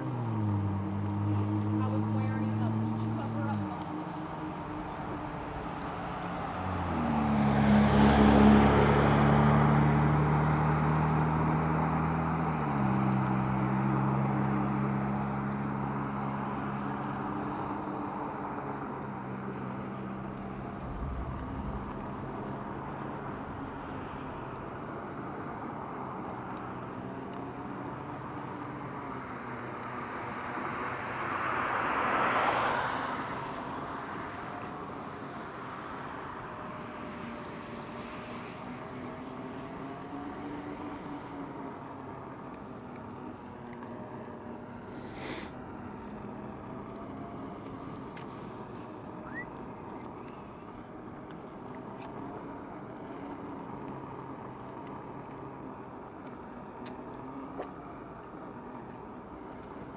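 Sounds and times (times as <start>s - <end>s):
vehicle rushing past: 0.0s - 17.3s, 18.6s - 27.1s
vehicle engine passing: 0.0s - 28.7s.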